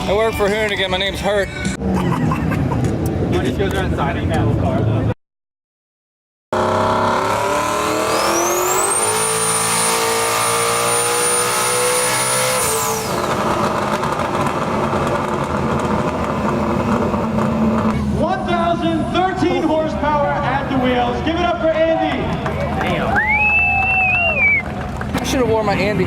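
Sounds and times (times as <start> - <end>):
car engine revving on dyno: 6.5 - 18.2.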